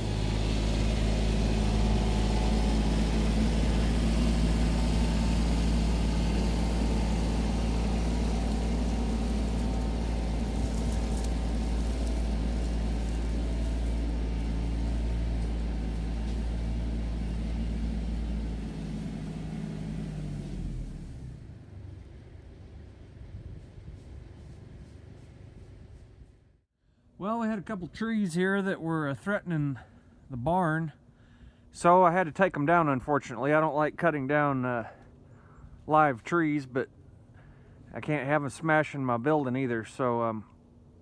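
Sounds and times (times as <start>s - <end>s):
tractor diesel engine running: 0.0s - 26.6s.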